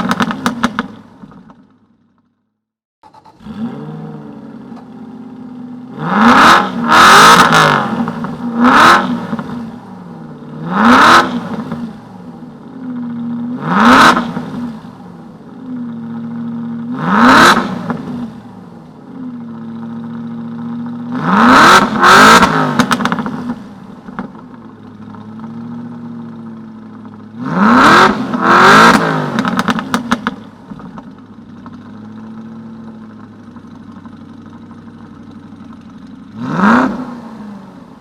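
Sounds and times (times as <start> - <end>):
car engine revving: 3.0 - 15.0, 15.6 - 18.5, 19.6 - 24.3, 27.2 - 32.9, 35.8 - 38.0.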